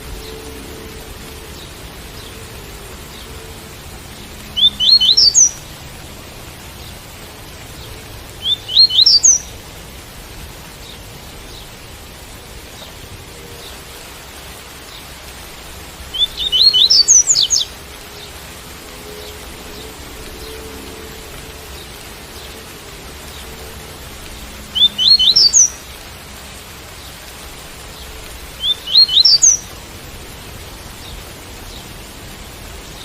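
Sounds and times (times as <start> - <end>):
rain hissing: 0.0 - 33.0
bird singing rising notes: 4.4 - 5.6, 8.4 - 9.5, 16.1 - 18.3, 24.7 - 25.8, 28.6 - 29.7.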